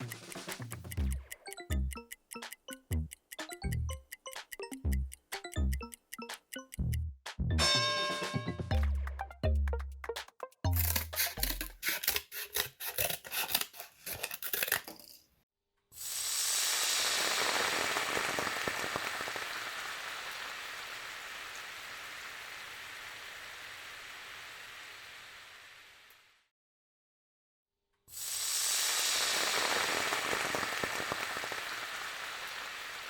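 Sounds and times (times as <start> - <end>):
percussive music clicks: 0.0 - 11.8
sizzling hiss with crackles: 16.0 - 26.3, 28.2 - 33.0.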